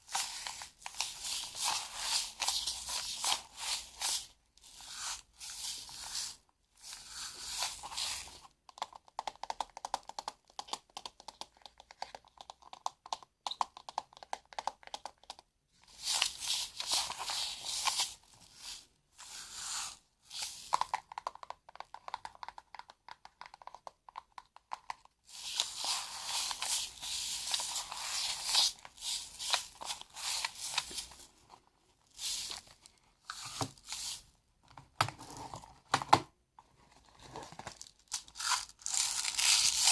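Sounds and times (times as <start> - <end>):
crinkling and rustling: 20.3 - 39.9.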